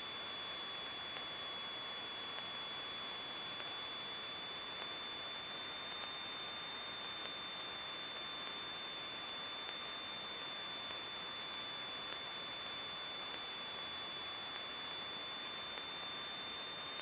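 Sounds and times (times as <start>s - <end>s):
high-pitched whine: 0.0s - 17.0s
faint tick: 3.6s - 3.8s, 5.9s - 6.2s, 9.6s - 9.8s.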